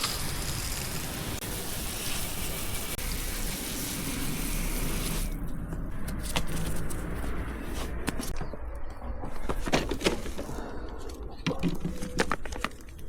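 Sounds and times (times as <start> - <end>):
water spraying: 0.0 - 5.5.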